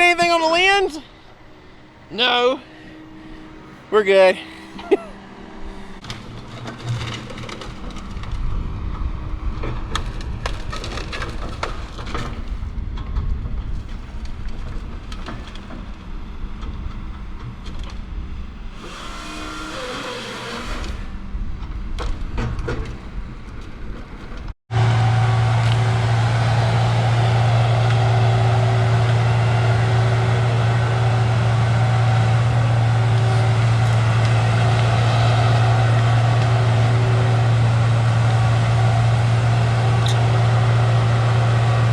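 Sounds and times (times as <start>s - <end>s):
vehicle rumbling on rough road: 0.0s - 41.9s
engine drone with low hum: 1.0s - 41.9s
rattles and knocks: 6.0s - 24.6s.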